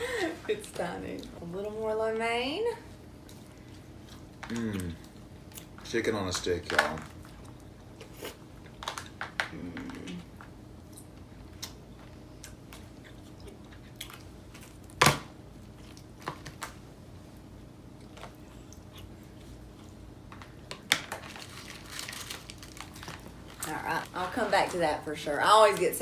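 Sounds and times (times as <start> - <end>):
people chewing food: 2.9 - 16.6, 17.4 - 24.4.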